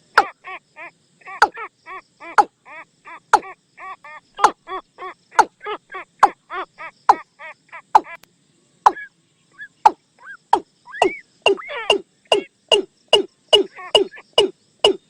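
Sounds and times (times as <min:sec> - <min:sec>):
bird calls from decoy lure: 0:08.9 - 0:15.0.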